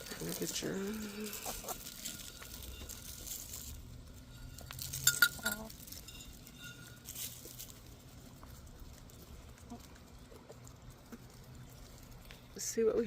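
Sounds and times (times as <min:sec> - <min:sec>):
sharp metal clinks: 0:02.0 - 0:07.5.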